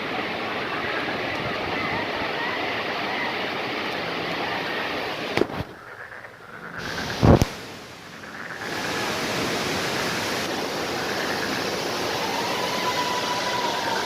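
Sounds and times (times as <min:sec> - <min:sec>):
waterfall rushing: 0:00.0 - 0:05.6, 0:06.8 - 0:14.0.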